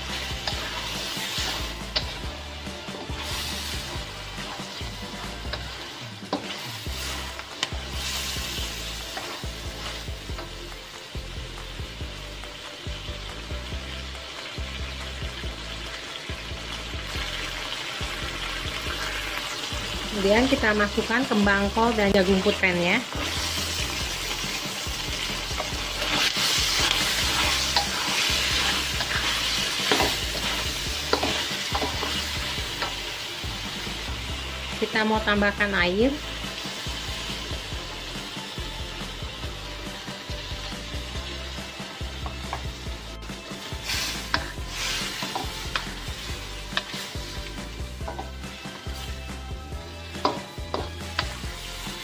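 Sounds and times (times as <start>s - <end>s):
spatula scraping and knocking wok: 0.0s - 12.4s, 17.0s - 52.0s
oil sizzling in a wok: 0.0s - 52.0s
spatula scraping and knocking pan: 22.4s - 33.0s, 43.9s - 47.4s, 48.0s - 48.4s, 50.2s - 51.4s.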